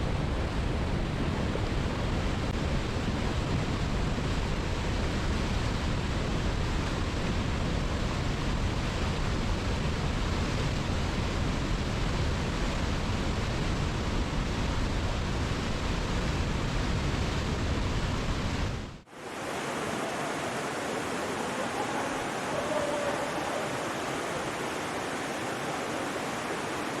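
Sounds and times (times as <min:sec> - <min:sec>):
waterfall roaring: 0:19.0 - 0:27.0.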